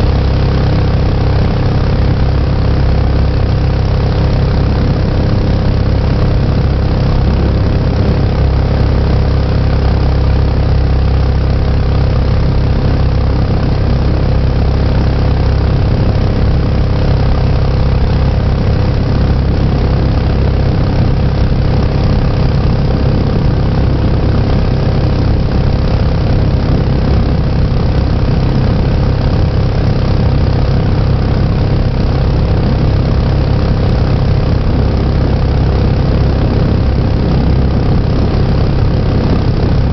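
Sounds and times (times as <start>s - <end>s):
jet boat engine running: 0.0s - 39.9s.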